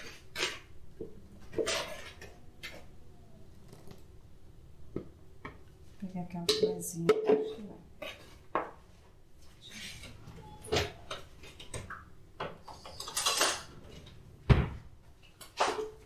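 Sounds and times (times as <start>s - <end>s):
dull knocks and thud: 14.4s - 14.9s.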